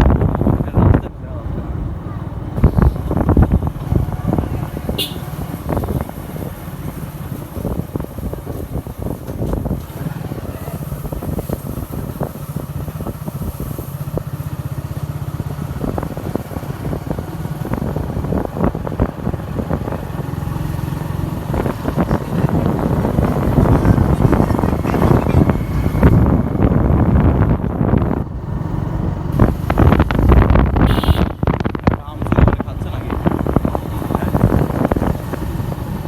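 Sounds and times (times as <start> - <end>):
motorcycle riding on road: 0.0 - 36.0
wind buffeting microphone: 0.0 - 36.0.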